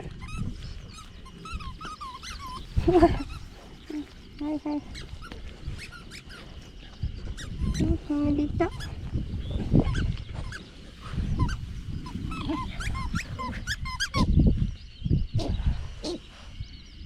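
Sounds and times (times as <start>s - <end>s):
puppies yelping: 0.0s - 4.0s, 10.0s - 14.3s
puppies yipping and whining: 0.0s - 4.0s, 9.8s - 14.3s
puppies growling: 0.0s - 4.2s.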